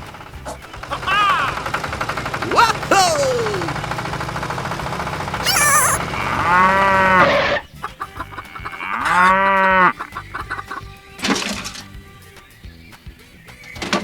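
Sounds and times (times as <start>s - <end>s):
high warbling call: 5.4s - 6.3s
cow mooing: 5.4s - 7.5s, 8.4s - 10.0s.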